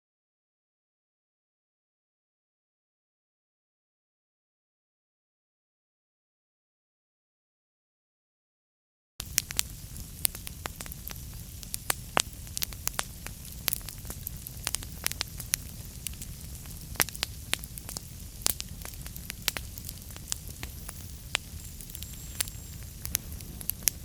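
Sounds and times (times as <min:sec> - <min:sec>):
low rumble of flames: 0:09.2 - 0:24.0
wood fire crackling: 0:09.2 - 0:24.0.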